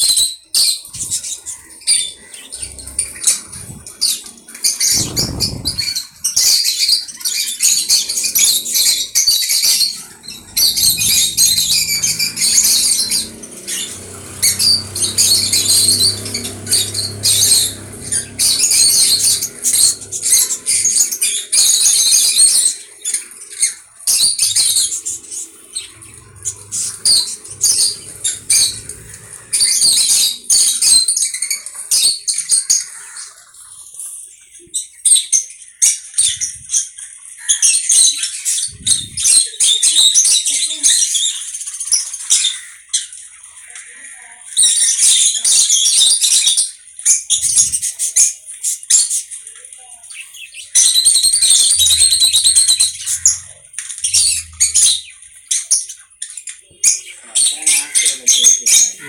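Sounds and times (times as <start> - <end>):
parrot squeaking and squawking: 7.7 - 31.6, 50.8 - 56.0.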